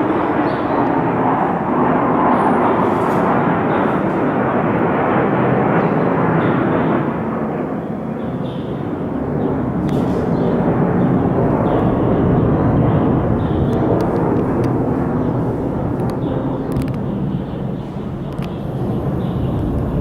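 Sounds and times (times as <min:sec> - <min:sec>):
fighter jet roar: 0:00.0 - 0:20.0.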